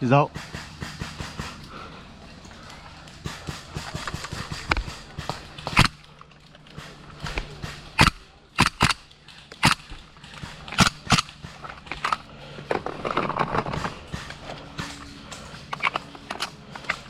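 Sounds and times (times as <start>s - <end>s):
airsoft guns popping: 3.0s - 12.3s.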